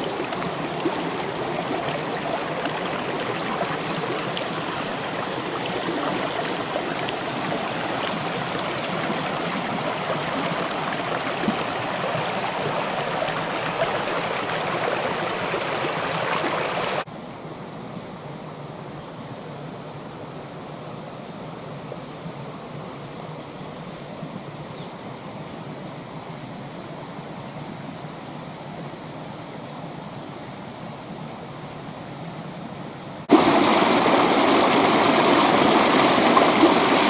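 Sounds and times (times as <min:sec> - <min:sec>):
creek water flowing over rocks: 0:00.0 - 0:17.1, 0:33.2 - 0:37.0.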